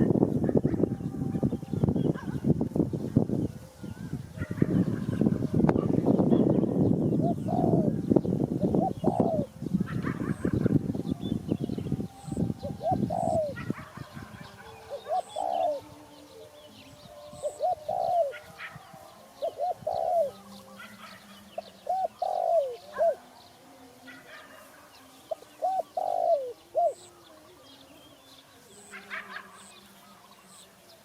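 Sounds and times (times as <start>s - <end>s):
small birds chirping: 0.0s - 31.0s
dove cooing: 3.4s - 27.9s.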